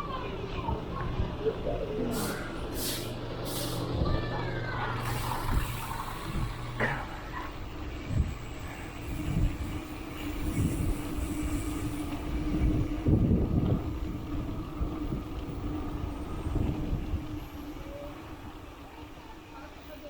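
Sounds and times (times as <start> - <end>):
wind rumble on microphone: 7.7 - 18.8.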